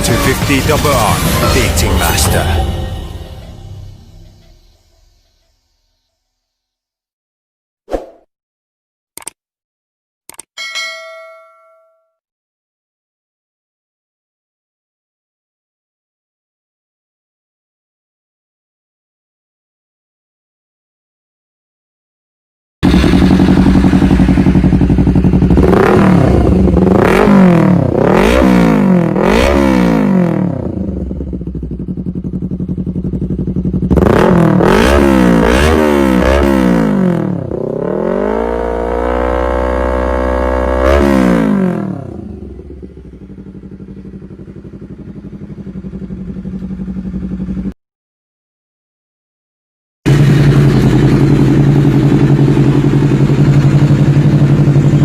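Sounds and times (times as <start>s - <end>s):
motorcycle engine revving: 22.8s - 47.8s, 50.1s - 55.0s.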